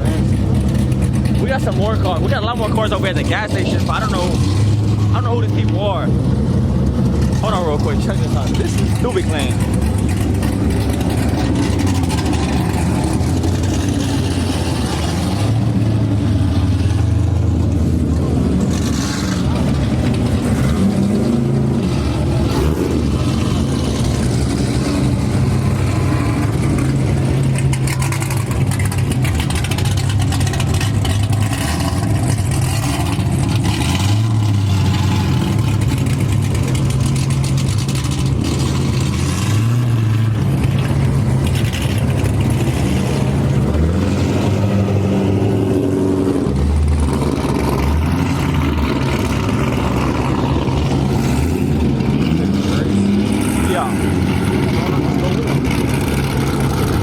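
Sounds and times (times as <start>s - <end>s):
car engine revving: 0.0s - 57.0s
car engines idling: 0.0s - 57.0s.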